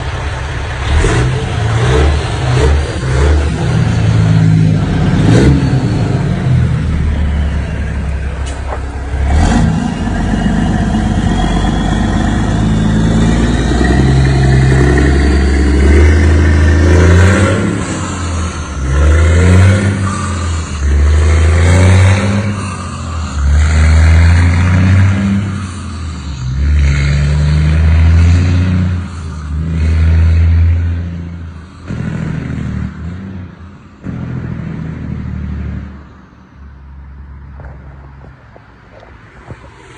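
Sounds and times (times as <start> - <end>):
loud engine revving: 0.0 - 36.0.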